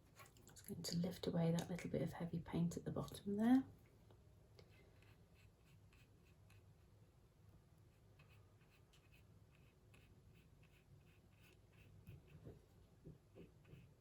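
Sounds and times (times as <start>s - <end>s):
paintbrush strokes on paper: 13.3s - 14.0s.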